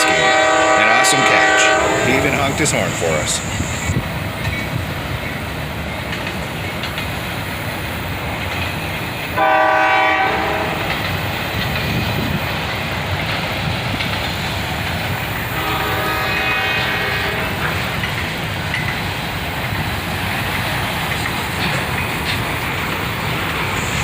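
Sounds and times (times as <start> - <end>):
locomotive air horn: 0.0 - 2.6, 9.4 - 10.9, 15.6 - 17.6
train wheels rumbling on rail: 0.0 - 24.0.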